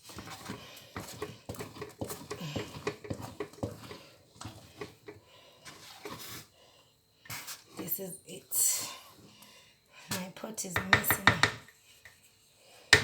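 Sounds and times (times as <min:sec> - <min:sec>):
porridge stirred in a pot: 0:00.0 - 0:10.1.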